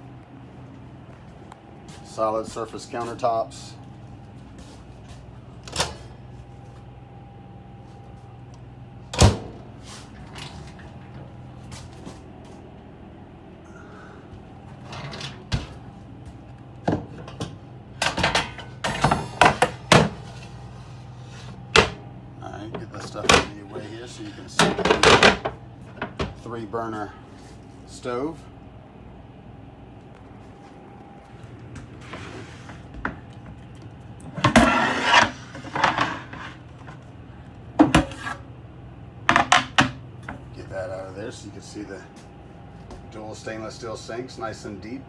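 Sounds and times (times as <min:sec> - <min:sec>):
steady low hum: 0:00.0 - 0:45.0
kitchen items knocking and clattering: 0:16.9 - 0:20.3, 0:21.8 - 0:22.0, 0:23.0 - 0:23.6, 0:24.6 - 0:26.4, 0:34.4 - 0:37.0, 0:37.8 - 0:38.3, 0:39.3 - 0:40.4.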